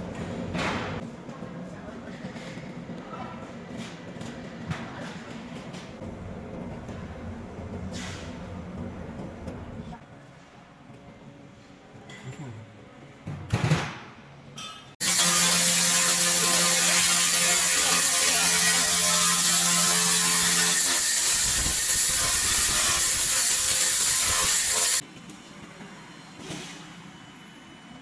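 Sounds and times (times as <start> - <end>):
laser crackling hiss on metal: 15.0 - 25.0.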